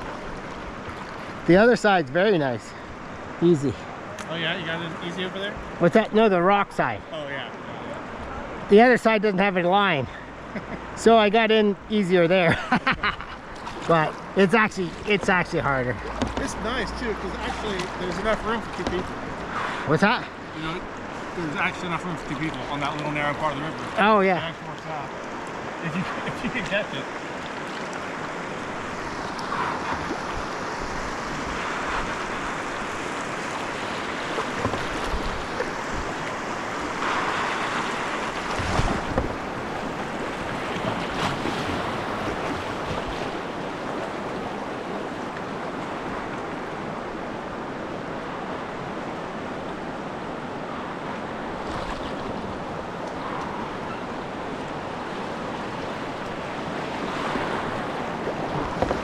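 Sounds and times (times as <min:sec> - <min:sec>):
whitewater rushing: 0:13.6 - 0:59.0
splashes and knocks: 0:16.0 - 0:16.7, 0:17.5 - 0:19.2, 0:33.6 - 0:44.7, 0:57.0 - 0:59.0.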